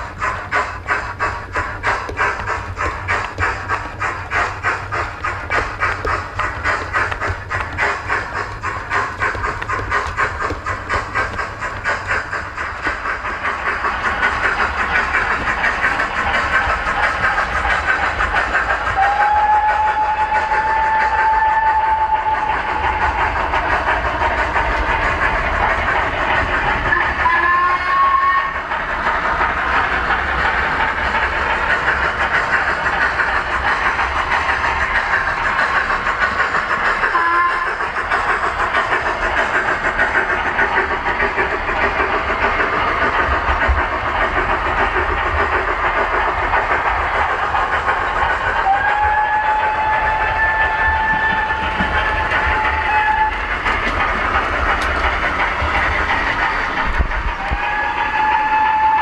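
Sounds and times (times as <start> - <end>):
model steam train chuffing: 0.0 - 59.0
train whistle blasts: 19.0 - 23.2, 26.9 - 28.7, 37.1 - 37.9, 48.6 - 51.8, 52.4 - 53.6, 57.4 - 59.0.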